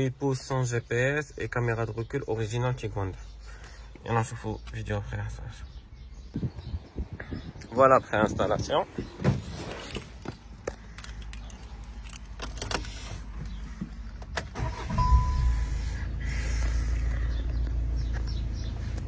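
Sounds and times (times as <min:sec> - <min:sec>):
car engine starting and idling: 0:11.0 - 0:19.0
short beep: 0:14.7 - 0:16.0.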